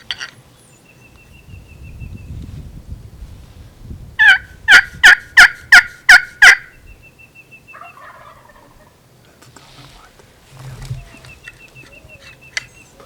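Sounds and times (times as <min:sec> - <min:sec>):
turkey yelps: 0:04.2 - 0:06.8, 0:07.7 - 0:09.0.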